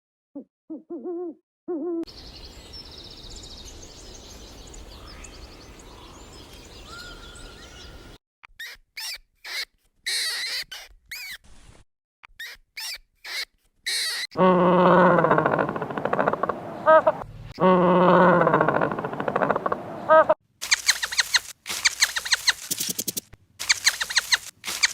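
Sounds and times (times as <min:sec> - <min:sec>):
birdsong with chirps and trills: 0:02.1 - 0:08.2, 0:15.2 - 0:17.3, 0:18.1 - 0:23.1, 0:23.7 - 0:24.9
high-pitched squeaky animal calls: 0:08.6 - 0:11.4, 0:12.4 - 0:14.3, 0:18.0 - 0:24.9
owl hooting: 0:14.0 - 0:22.6.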